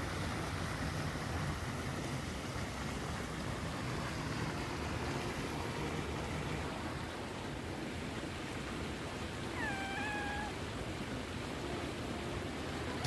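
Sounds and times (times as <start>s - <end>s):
falling water rushing: 0.0s - 13.0s
cat meowing: 9.5s - 10.7s.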